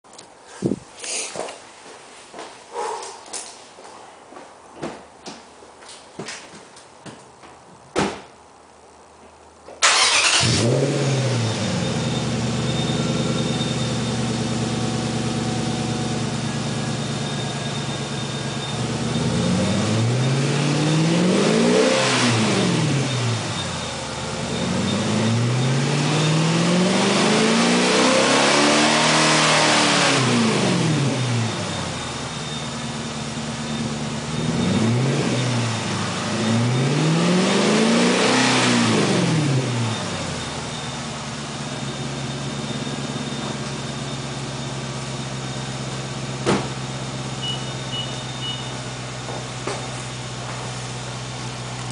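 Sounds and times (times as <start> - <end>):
car engine revving: 9.8 - 46.4
car engine starting and idling: 9.8 - 51.9.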